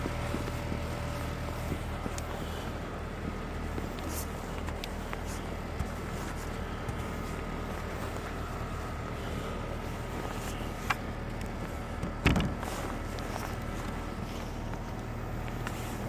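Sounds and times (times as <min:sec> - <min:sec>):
car engine idling: 0:00.0 - 0:16.0
short knock: 0:12.2 - 0:12.6.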